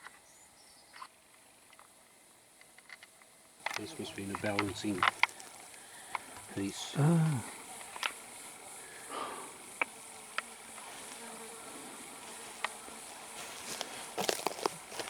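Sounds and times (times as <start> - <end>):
insects buzzing: 0.0 - 15.0
sharp ticks and crackles: 2.6 - 8.5, 9.6 - 10.9, 12.5 - 12.8.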